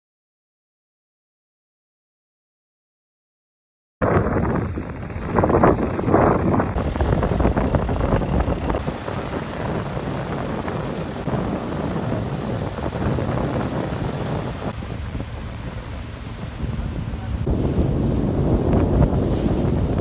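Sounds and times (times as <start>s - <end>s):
outboard motors running: 4.9s - 20.0s.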